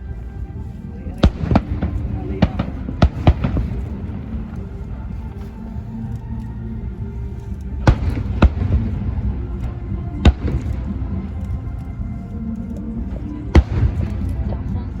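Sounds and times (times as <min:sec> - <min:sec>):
music playing: 0:00.0 - 0:15.0
fireworks bangs: 0:01.2 - 0:04.2.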